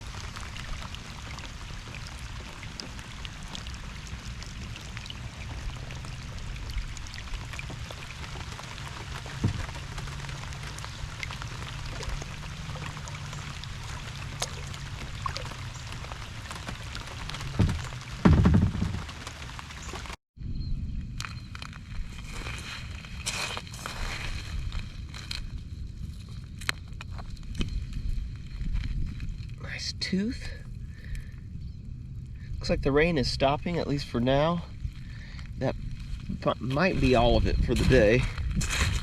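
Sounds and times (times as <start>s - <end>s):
raindrops ticking nearby: 0.0s - 20.2s, 26.6s - 39.0s
steady rain falling: 0.0s - 20.2s
low thumps: 17.3s - 19.3s.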